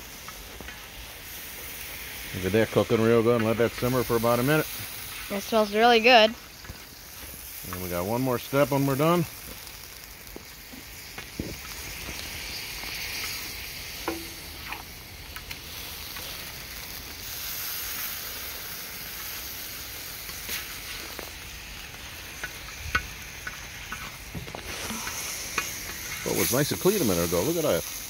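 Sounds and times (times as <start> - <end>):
sauce sizzling on steel disc: 0.0 - 28.0
metal spatula scraping and tapping: 14.0 - 14.4, 22.4 - 26.3.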